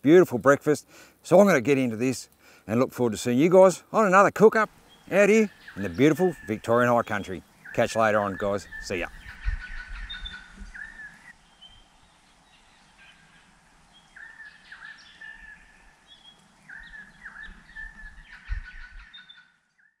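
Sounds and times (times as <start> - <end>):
faint bird chirps: 4.7 - 20.0
bird whistled swooping call: 8.6 - 11.8.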